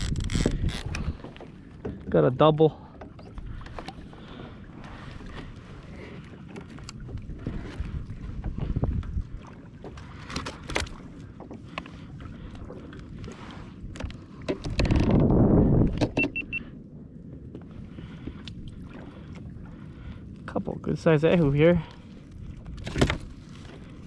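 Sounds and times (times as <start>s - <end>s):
fishing tackle knocks and rustling: 3.0s - 4.2s, 9.9s - 11.9s, 13.9s - 15.3s, 22.6s - 23.8s
short high beeps: 16.2s - 16.7s.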